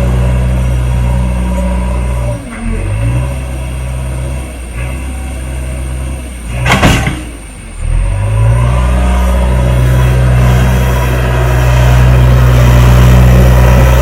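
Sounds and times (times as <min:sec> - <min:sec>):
diesel engine running: 0:00.0 - 0:14.0
loud rush of noise: 0:07.9 - 0:14.0.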